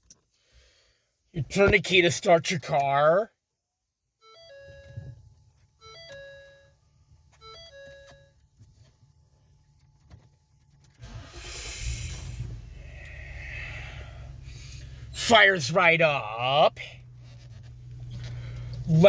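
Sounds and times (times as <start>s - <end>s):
dashboard warning chime: 4.2s - 8.6s
car engine starting and idling: 4.4s - 19.0s.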